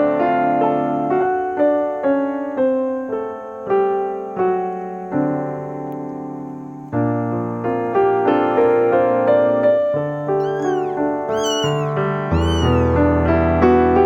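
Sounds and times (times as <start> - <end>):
kitten meowing: 10.4 - 13.0.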